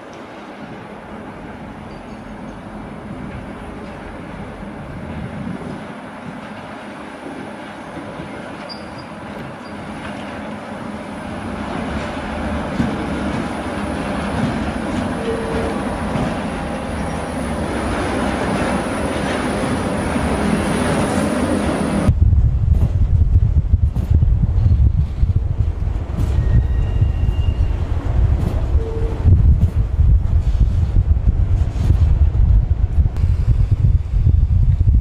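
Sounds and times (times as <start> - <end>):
wheels rumbling on rails: 0.0 - 35.0
brief squeal: 8.7 - 9.8, 26.2 - 27.8.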